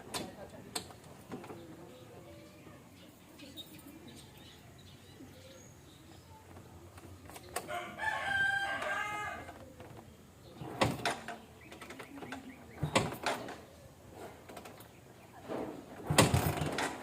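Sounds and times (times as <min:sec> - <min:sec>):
rooster crowing: 0:07.7 - 0:09.6.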